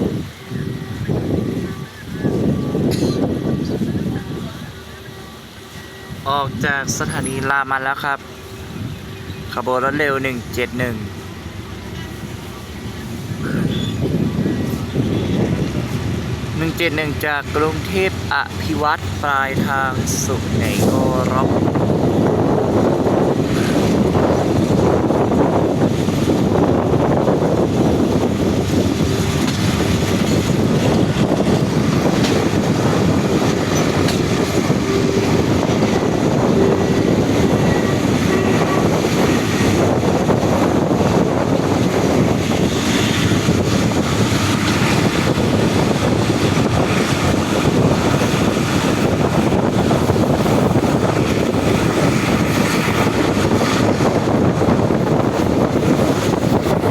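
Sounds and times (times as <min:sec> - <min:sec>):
train rumbling on track: 0:00.0 - 0:56.9.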